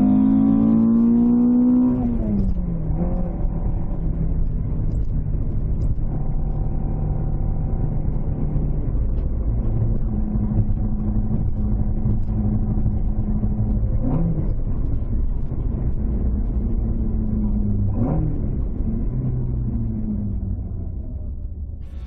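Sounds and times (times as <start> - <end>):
car engine running: 0.0 - 22.0.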